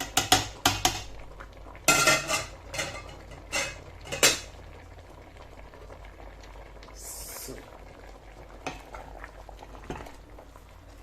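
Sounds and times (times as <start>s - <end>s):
spoon scraping a cooking pot: 1.9s - 4.4s.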